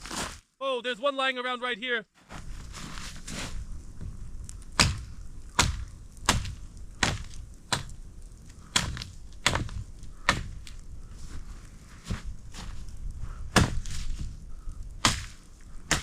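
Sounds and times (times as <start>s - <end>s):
blade chopping wooden stick: 5.6s - 7.9s, 15.0s - 16.0s.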